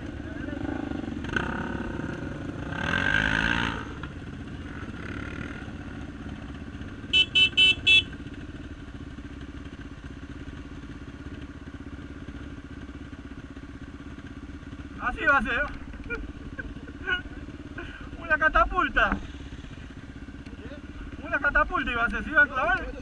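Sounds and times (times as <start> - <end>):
motorcycle engine running: 0.0 - 23.0
horn tooting: 7.0 - 8.3.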